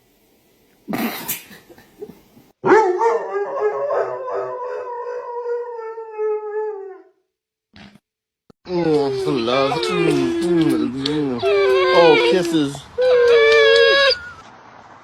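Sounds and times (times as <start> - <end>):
dog howling: 2.6 - 7.2, 8.7 - 14.4.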